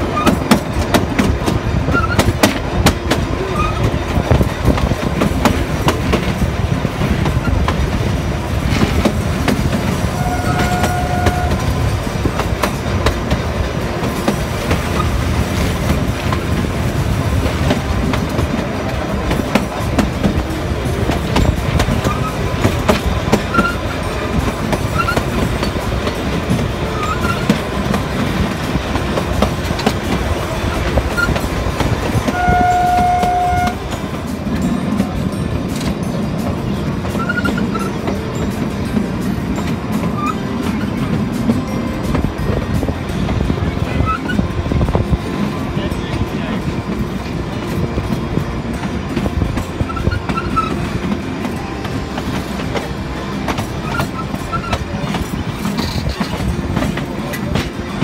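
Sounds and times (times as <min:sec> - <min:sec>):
train carriages rumbling and rattling: 0:00.0 - 0:58.0
wheels clicking over rail joints: 0:00.0 - 0:58.0
train horn blasts: 0:10.0 - 0:12.0, 0:32.2 - 0:34.0.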